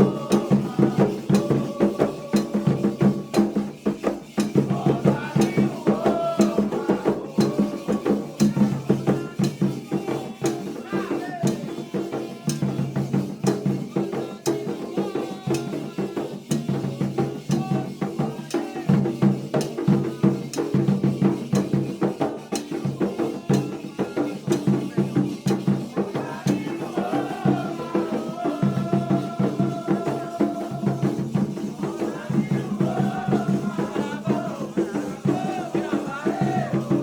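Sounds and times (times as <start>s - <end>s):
shaker rattles: 0.0s - 14.6s
drums playing fast rhythm: 0.0s - 37.0s
voices singing: 0.0s - 37.0s.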